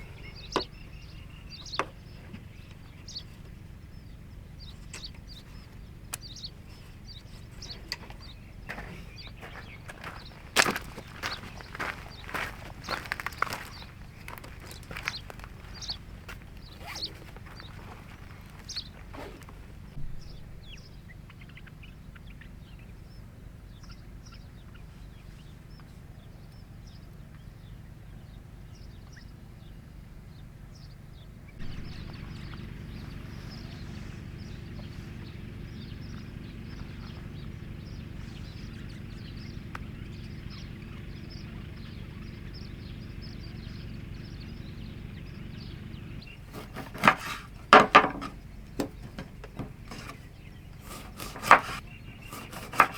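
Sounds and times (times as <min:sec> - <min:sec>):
birds chirping: 0:00.0 - 0:52.9
sharp knocks: 0:46.5 - 0:50.2.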